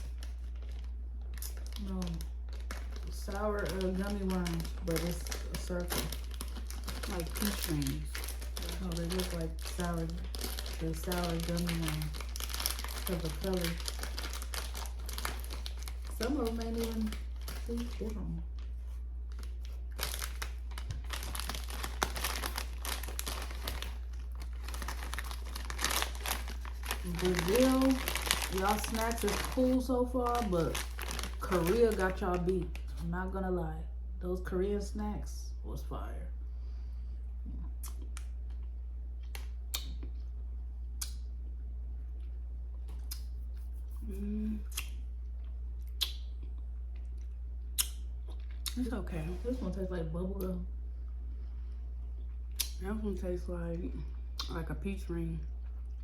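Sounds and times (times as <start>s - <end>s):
plastic packet crinkling: 0.0s - 33.1s
steady low hum: 0.0s - 56.0s.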